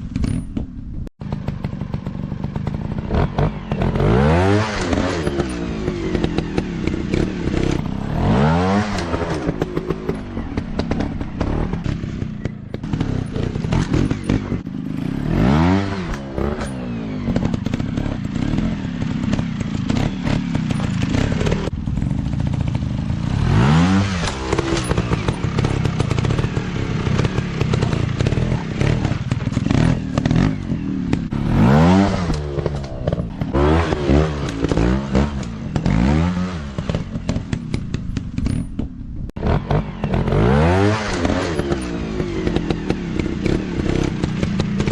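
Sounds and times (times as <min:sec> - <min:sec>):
dirt bike engines revving: 0:01.3 - 0:44.9
clatter and knocks: 0:08.9 - 0:14.7, 0:24.2 - 0:31.3, 0:36.8 - 0:39.6.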